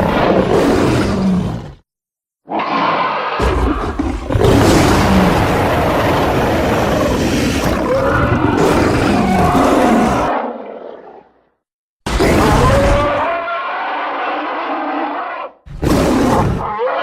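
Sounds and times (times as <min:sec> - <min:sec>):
deep animal roar: 0:03.4 - 0:11.2.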